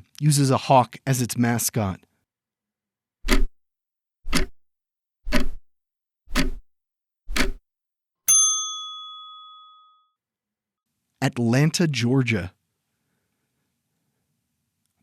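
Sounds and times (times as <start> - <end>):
clock ticks: 3.3 - 3.5, 4.3 - 4.6, 5.3 - 5.6, 6.3 - 6.6, 7.3 - 7.6
bell ding: 8.3 - 10.1.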